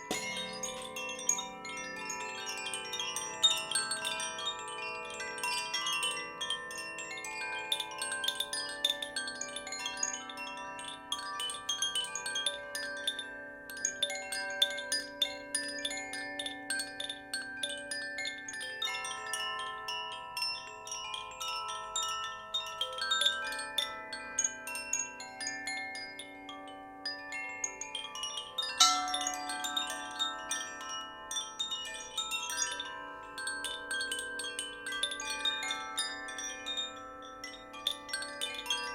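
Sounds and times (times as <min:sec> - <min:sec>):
chimes ringing: 0:00.0 - 0:02.2, 0:28.6 - 0:33.2
wind chimes ringing: 0:00.0 - 0:38.9
low steady tone: 0:28.8 - 0:30.4.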